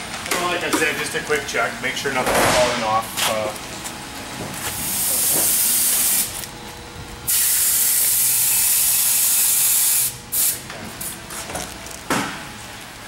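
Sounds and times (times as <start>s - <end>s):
compressed air hissing: 4.8s - 6.4s, 7.3s - 11.1s.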